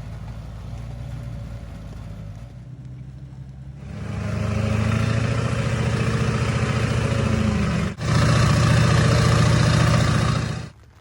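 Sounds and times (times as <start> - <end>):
diesel truck engine revving: 0.0 - 10.8.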